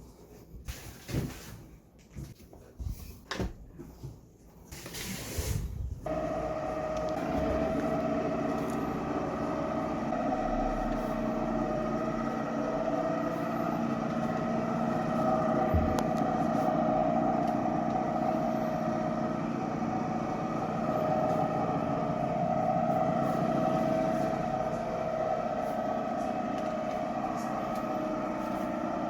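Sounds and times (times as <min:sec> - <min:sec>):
mop cleaner motor humming: 0:06.0 - 0:29.0.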